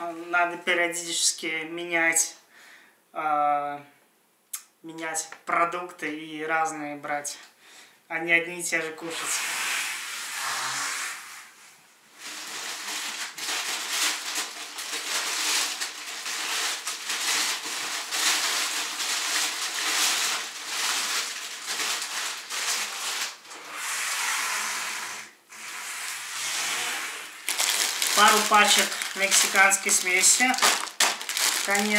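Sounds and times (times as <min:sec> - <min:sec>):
plastic bags rustling and crinkling: 0:12.1 - 0:23.8, 0:27.2 - 0:31.9.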